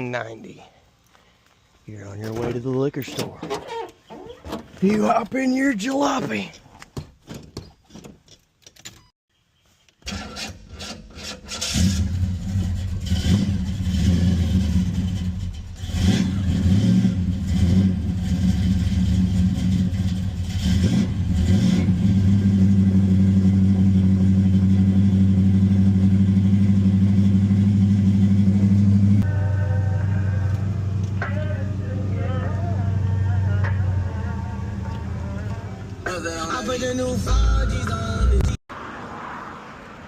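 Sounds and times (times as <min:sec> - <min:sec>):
car engine cranking and starting: 0:10.0 - 0:29.2
car engine revving: 0:11.5 - 0:29.3.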